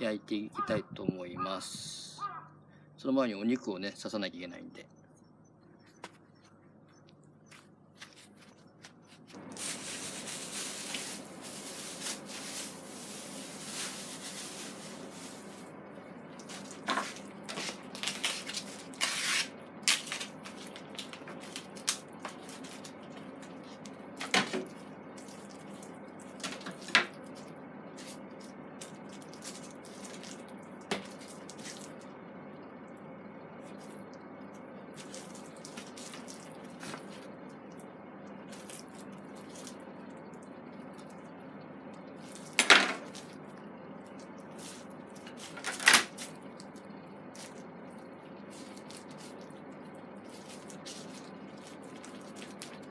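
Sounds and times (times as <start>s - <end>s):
water running: 9.4s - 18.1s.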